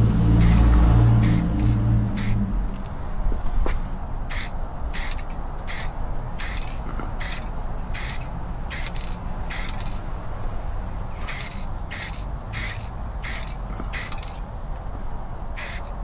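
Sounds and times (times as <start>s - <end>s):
low background rumble: 0.0s - 16.0s
spray paint hissing bursts: 0.3s - 2.4s, 4.3s - 10.0s, 11.2s - 14.4s, 15.6s - 16.0s.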